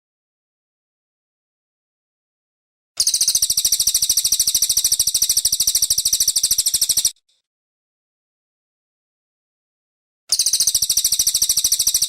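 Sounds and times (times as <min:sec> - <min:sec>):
songbird high rapid trill: 0:03.0 - 0:07.2, 0:10.3 - 0:12.0.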